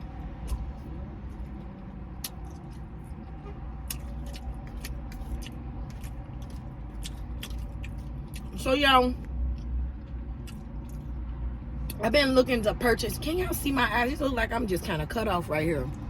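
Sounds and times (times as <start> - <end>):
chewing and smacking: 0.0 - 8.6, 9.2 - 12.0
low steady rumble: 0.0 - 16.0.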